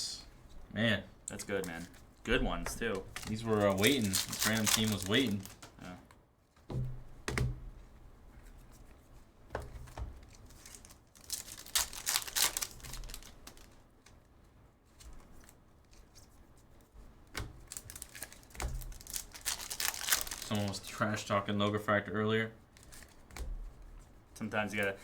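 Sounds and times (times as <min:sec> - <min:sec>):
packaging crinkling: 0:02.8 - 0:06.0, 0:10.2 - 0:13.8, 0:17.6 - 0:21.0
dull thumps: 0:06.6 - 0:07.9.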